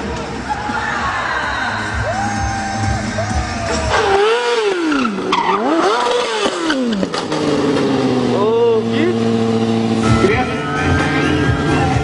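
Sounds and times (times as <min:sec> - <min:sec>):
music: 0:00.2 - 0:03.9, 0:10.0 - 0:12.0
motorcycle engine revving: 0:03.4 - 0:12.0.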